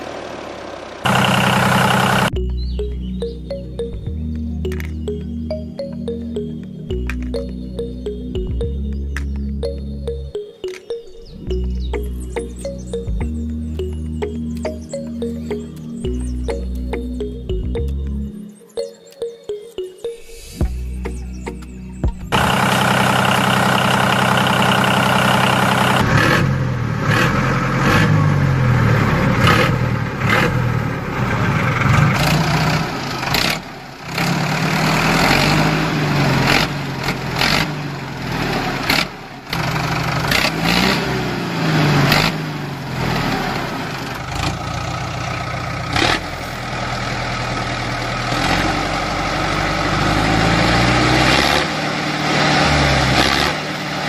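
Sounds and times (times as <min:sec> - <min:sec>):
tractor engine revving: 0:00.0 - 0:04.0, 0:22.1 - 0:54.0.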